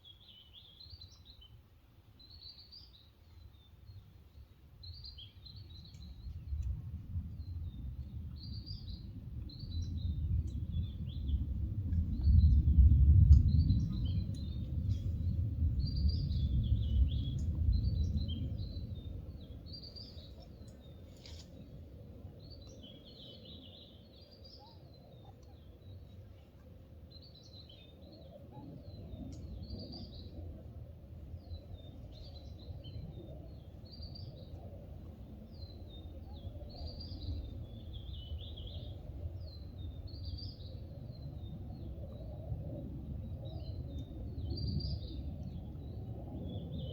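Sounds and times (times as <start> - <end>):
low outdoor rumble: 5.8 - 23.3.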